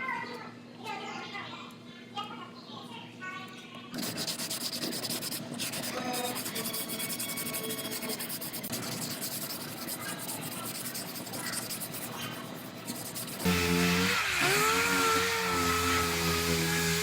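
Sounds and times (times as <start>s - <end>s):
sanding sheet metal: 4.0s - 17.0s.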